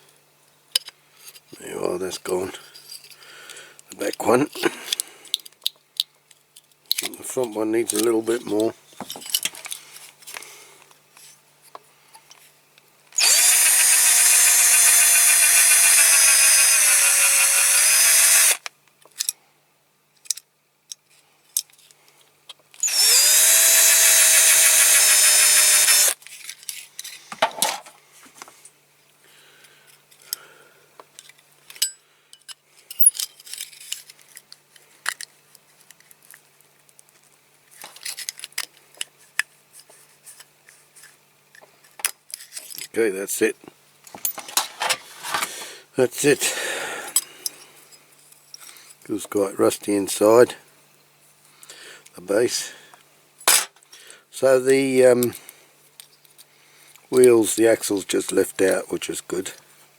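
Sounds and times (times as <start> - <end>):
clicks of handling metal parts: 0.7 - 1.5, 2.8 - 10.5, 18.9 - 19.4, 20.2 - 22.8, 26.2 - 28.5, 31.0 - 40.5, 41.5 - 43.0, 52.9 - 54.0
small electric drill whining: 13.2 - 18.7, 22.8 - 26.2.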